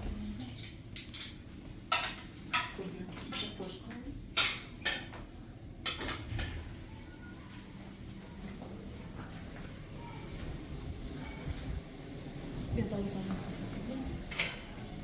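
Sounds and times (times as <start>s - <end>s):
dishes and cutlery clinking: 0.4s - 6.7s, 14.3s - 15.0s.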